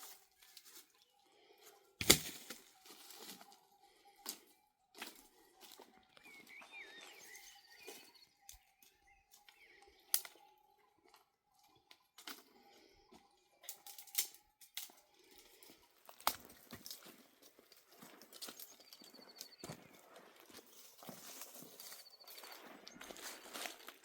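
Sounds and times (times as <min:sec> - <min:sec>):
horse hooves on stony ground: 0:15.6 - 0:24.0.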